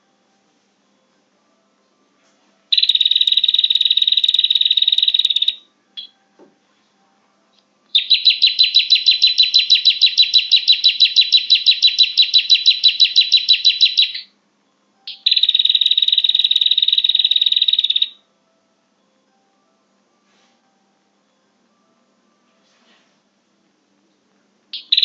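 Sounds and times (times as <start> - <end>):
bird trill of high chips: 8.0 - 14.2, 15.1 - 18.2.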